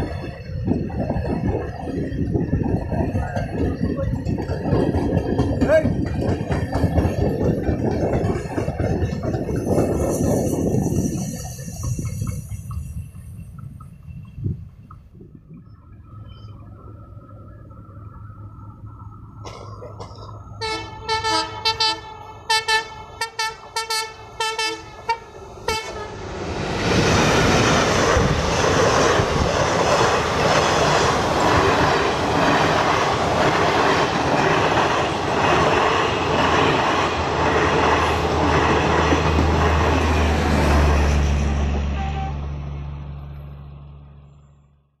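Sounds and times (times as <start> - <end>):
train coaches rushing past: 0.0 - 15.1, 16.6 - 43.6
wheels clattering over rail joints: 0.0 - 15.2
locomotive horn short blasts: 20.6 - 26.2, 41.5 - 42.4.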